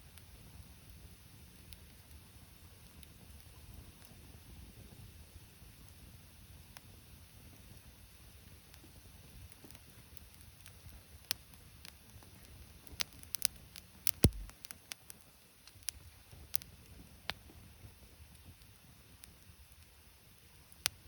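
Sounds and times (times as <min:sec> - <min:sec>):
thump: 0:14.2 - 0:14.5
wood snapping and crackling: 0:14.2 - 0:14.5.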